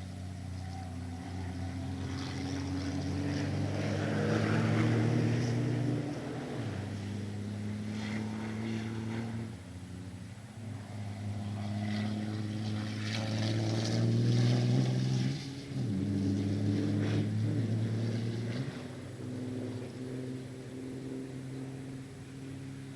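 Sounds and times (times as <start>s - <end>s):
racing truck engines passing: 0.0s - 22.9s.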